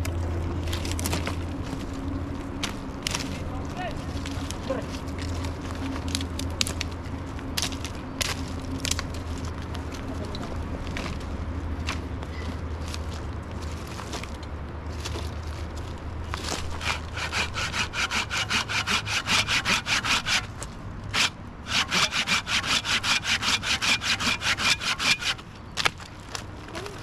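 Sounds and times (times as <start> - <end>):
handsaw cutting wood: 16.7 - 20.5, 21.1 - 25.4.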